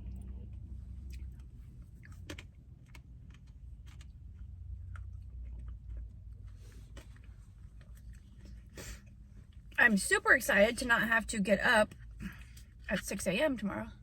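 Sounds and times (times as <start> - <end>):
chewing and mouth sounds: 0.0 - 9.8
steady low hum: 0.0 - 14.0.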